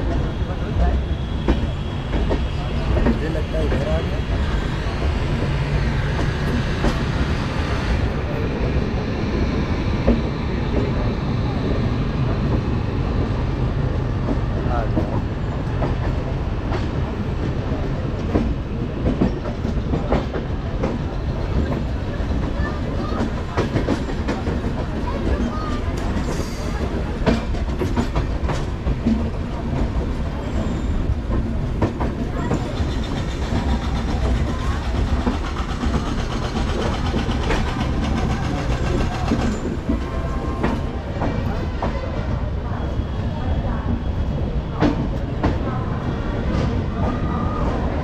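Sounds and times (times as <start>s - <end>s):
train wheels rumbling on rails: 0.0s - 48.0s
wheels clacking over rail joints: 9.9s - 42.5s.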